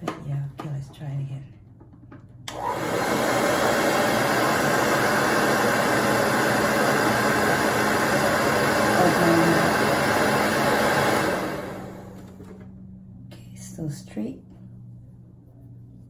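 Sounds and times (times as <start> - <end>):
hair dryer blowing: 2.5 - 12.6.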